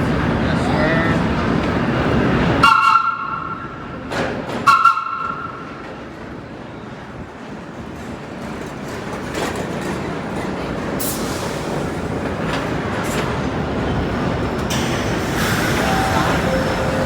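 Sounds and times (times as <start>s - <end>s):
subway train rumbling: 0.0s - 17.0s
sharp clanks of wheels on rails: 2.6s - 6.4s, 7.7s - 17.0s.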